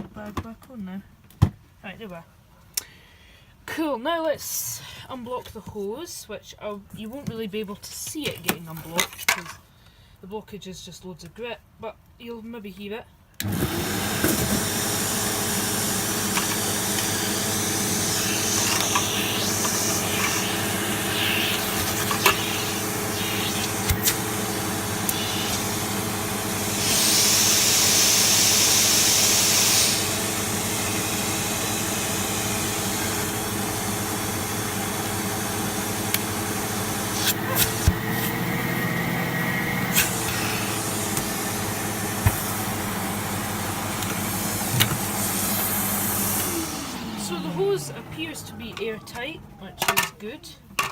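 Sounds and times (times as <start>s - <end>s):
vacuum cleaner running: 13.4s - 50.1s
rushing hiss of air: 17.0s - 25.9s, 26.6s - 30.2s.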